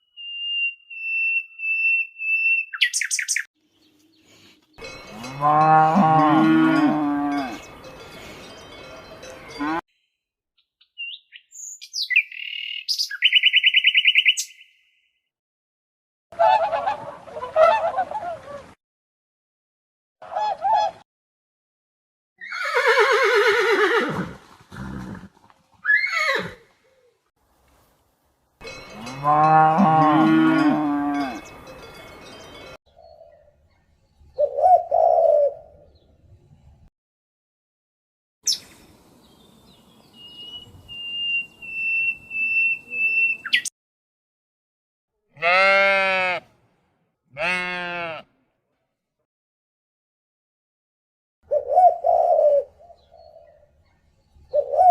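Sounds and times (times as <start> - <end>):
horse whinnying: 22.4 - 26.7
horse snorting: 24.0 - 25.5
goat bleating: 45.3 - 46.4, 47.3 - 48.3.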